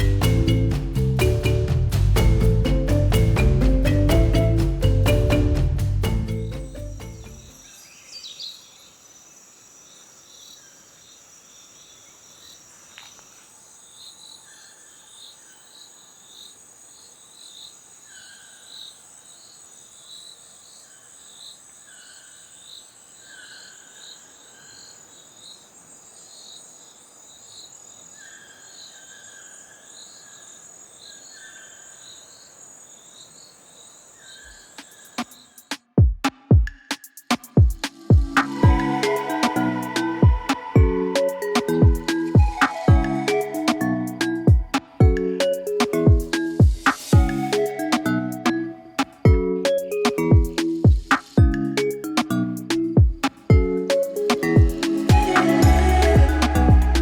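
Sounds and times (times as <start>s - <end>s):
insects high-pitched trill: 37.0s - 57.0s.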